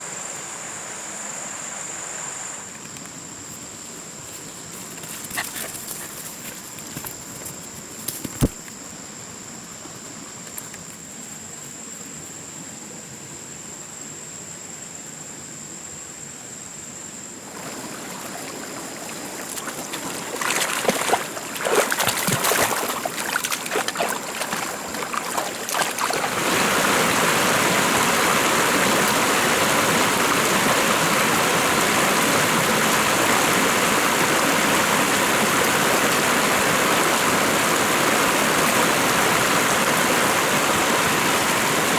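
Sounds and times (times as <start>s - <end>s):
rushing flowing water: 17.4s - 41.9s.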